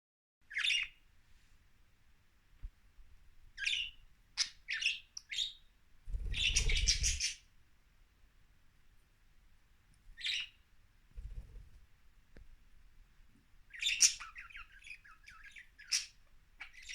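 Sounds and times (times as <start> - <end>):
budgerigars chirping: 0.5 - 1.0, 3.6 - 5.6, 6.3 - 7.4, 10.2 - 10.6, 13.7 - 16.9.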